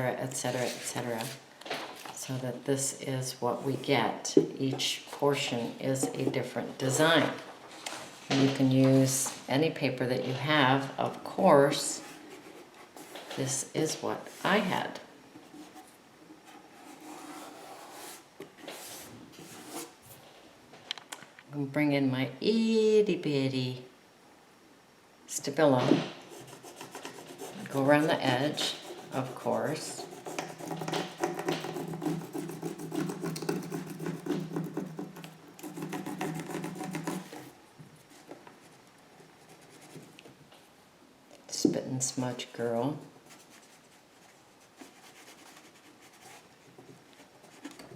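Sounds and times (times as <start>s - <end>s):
pencil scratching on paper: 15.6s - 19.9s, 26.3s - 37.5s.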